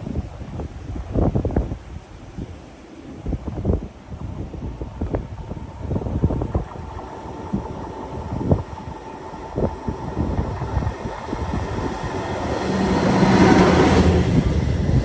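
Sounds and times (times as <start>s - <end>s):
wind buffeting microphone: 0.0s - 15.0s
train passing: 4.2s - 15.0s.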